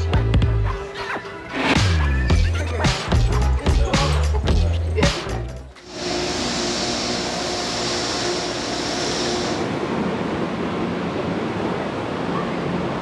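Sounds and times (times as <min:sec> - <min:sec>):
continuous hum: 0:02.4 - 0:13.0
high hiss: 0:05.9 - 0:09.7.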